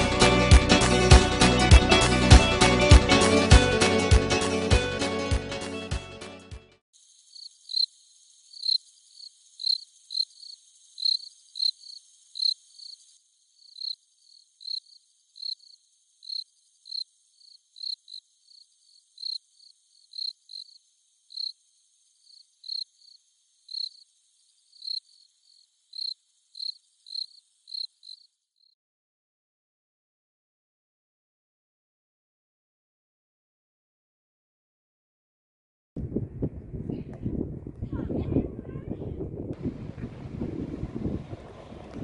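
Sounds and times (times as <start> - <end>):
cricket chirping: 7.0 - 28.8.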